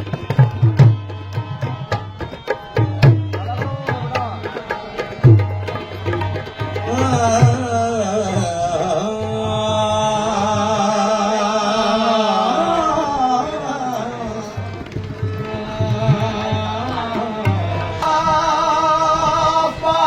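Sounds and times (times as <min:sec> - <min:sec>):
dholak drum strokes: 0:00.0 - 0:10.0, 0:13.9 - 0:20.0
wavering vocal melody: 0:00.0 - 0:20.0.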